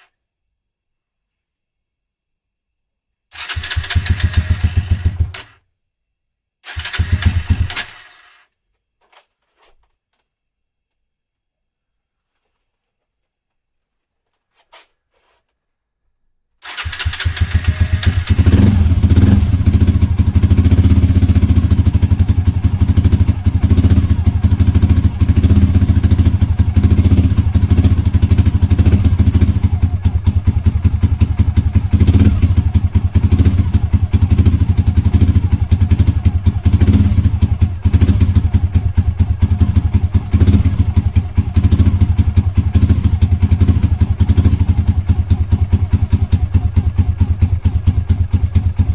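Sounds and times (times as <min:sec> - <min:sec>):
motorcycle engine starting and running: 0:03.4 - 0:05.6, 0:06.7 - 0:08.4, 0:16.6 - 0:48.9.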